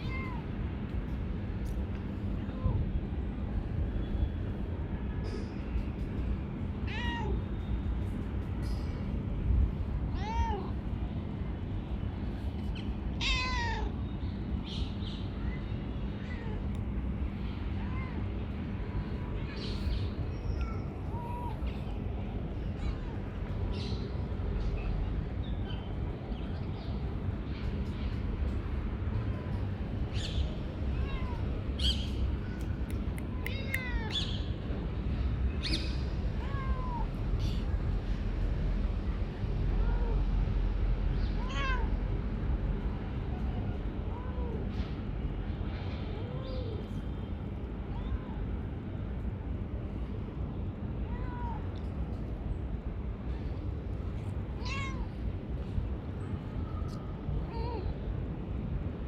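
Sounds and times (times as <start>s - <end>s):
steady low rumble: 0.0s - 59.0s
cat meowing: 13.2s - 13.9s, 30.9s - 31.6s, 33.3s - 34.3s, 54.6s - 55.2s.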